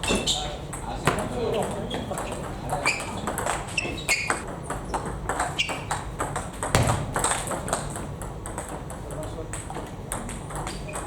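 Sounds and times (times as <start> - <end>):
heavy low thump: 6.8 - 7.7.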